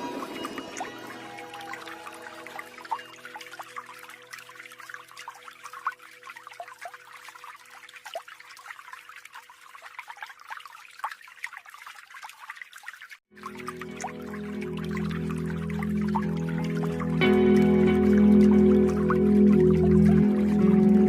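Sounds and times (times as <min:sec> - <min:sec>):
background music: 0:00.0 - 0:07.1, 0:13.4 - 0:21.0
water droplet plinks: 0:00.0 - 0:09.4, 0:13.4 - 0:21.0
small waterfall splashing: 0:00.0 - 0:21.0.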